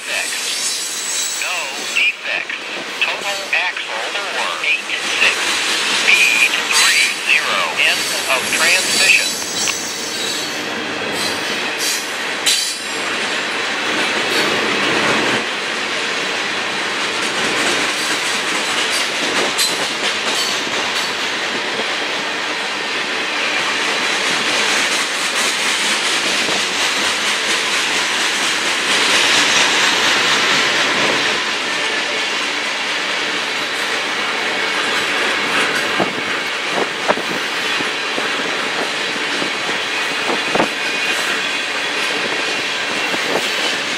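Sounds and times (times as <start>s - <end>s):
train rumble: 0.0s - 43.9s
train wheels clacking on rails: 8.0s - 43.9s.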